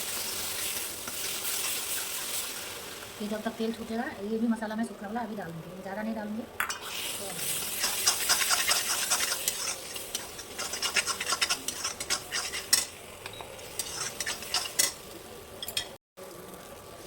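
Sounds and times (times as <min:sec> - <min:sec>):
paste sizzling in oil: 0:00.0 - 0:05.0, 0:06.6 - 0:17.0
utensil scraping pan: 0:06.6 - 0:15.0.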